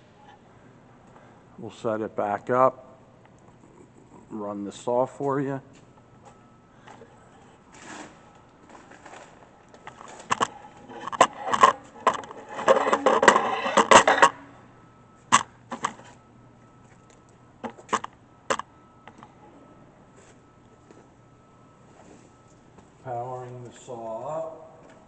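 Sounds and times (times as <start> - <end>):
faint steady hum: 0.0 - 25.0
metallic clicks and clanks: 9.9 - 14.4.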